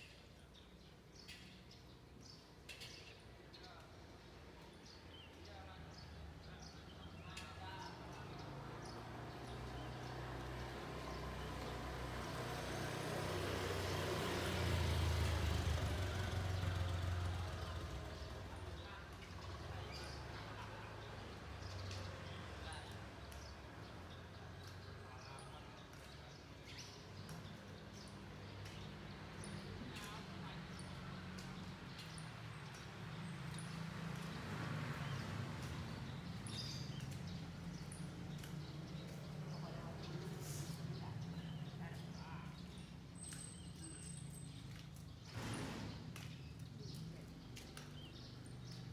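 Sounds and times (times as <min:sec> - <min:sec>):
vehicle passing: 0:08.4 - 0:22.7, 0:27.8 - 0:43.0, 0:45.3 - 0:48.9.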